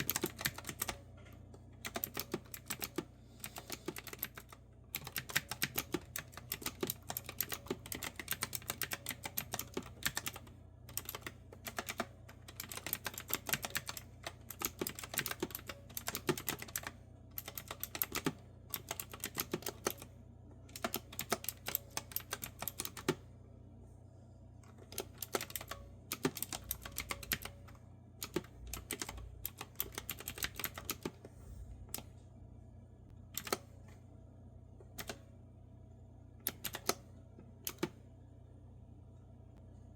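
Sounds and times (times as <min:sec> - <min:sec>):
typing on a clicky keyboard: 0:00.0 - 0:01.0, 0:01.8 - 0:20.1, 0:20.7 - 0:23.2, 0:24.8 - 0:27.6, 0:28.2 - 0:31.2, 0:36.5 - 0:37.0.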